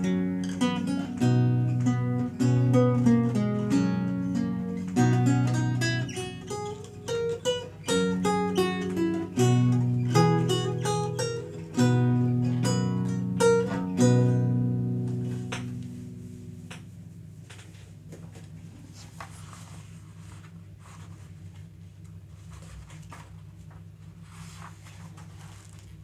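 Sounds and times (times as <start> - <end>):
lute playing: 0.0 - 17.5.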